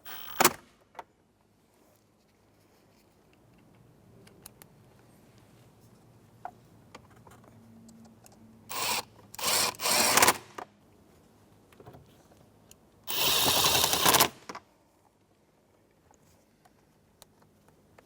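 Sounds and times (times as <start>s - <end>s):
cordless drill whirring: 0.1s - 0.5s, 8.7s - 10.4s, 13.1s - 14.5s.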